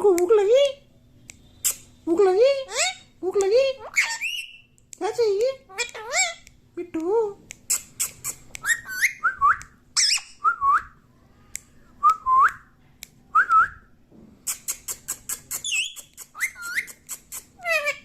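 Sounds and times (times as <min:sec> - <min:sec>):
parrot whistling: 0:07.7 - 0:10.8, 0:14.8 - 0:18.0.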